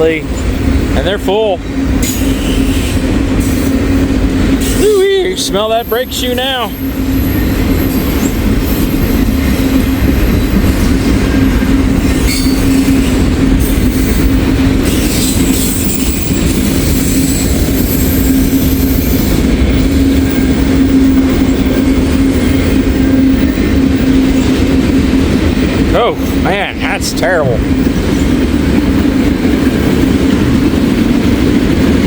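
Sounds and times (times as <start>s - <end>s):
train wheels on rail: 0.0s - 32.0s
faint high wheel squeal: 12.1s - 13.2s.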